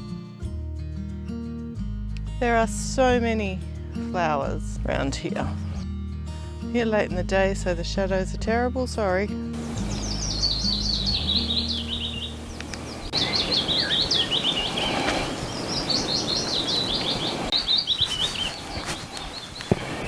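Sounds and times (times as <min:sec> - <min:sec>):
outdoor background hiss: 0:09.5 - 0:20.0
songbird singing: 0:09.6 - 0:20.0.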